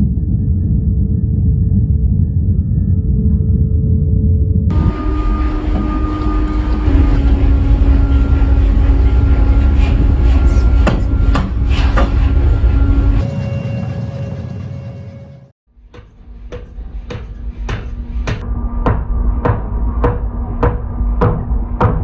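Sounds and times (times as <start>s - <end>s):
factory machinery rumbling: 0.0s - 15.6s.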